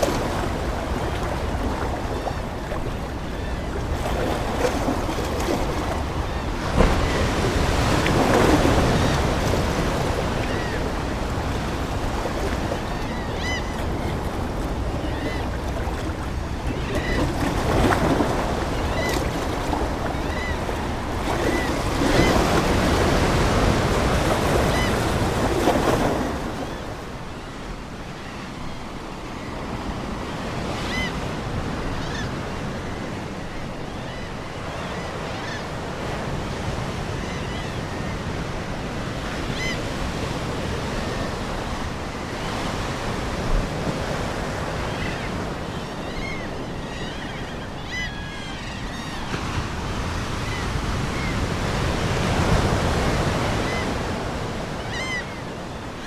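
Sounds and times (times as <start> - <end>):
ocean waves washing in: 0.0 - 33.5
seagull calls: 8.6 - 26.9.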